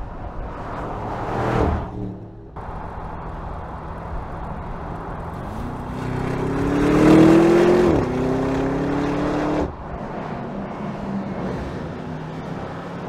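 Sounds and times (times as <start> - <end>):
car engine accelerating hard: 4.0 - 9.8.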